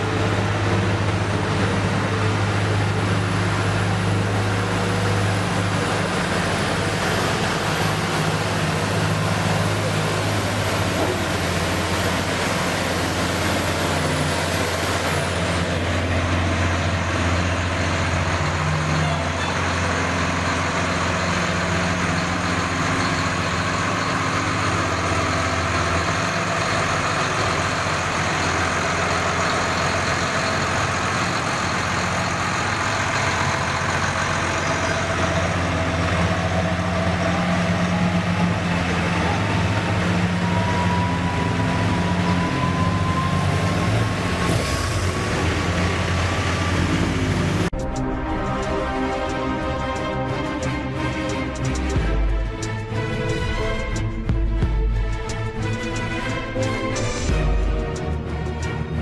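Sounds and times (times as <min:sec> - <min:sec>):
truck engine humming: 0:00.0 - 0:59.0.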